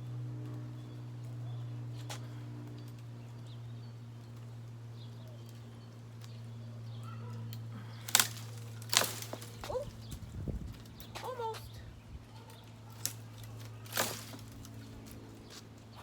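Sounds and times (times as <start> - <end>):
steady low hum: 0.0 - 16.0
twigs rustling and ticking: 0.4 - 16.0
branches cracking: 7.2 - 11.7, 12.6 - 16.0.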